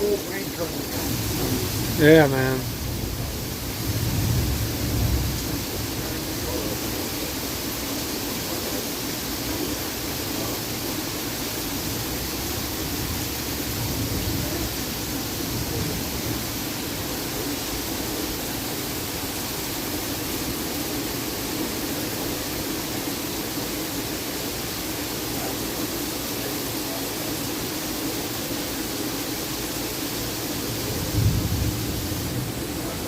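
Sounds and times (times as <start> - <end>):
heavy rain hissing: 0.0 - 33.0.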